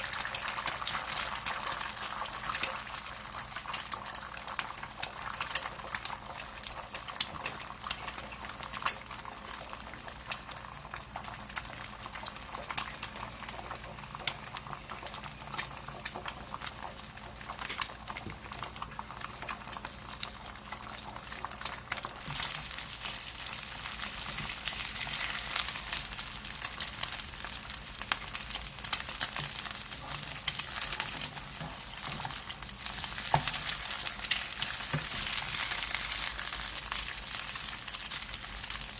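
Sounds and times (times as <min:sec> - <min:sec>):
crackles and pops: 0:00.0 - 0:38.9
food sizzling in a pan: 0:00.0 - 0:38.9.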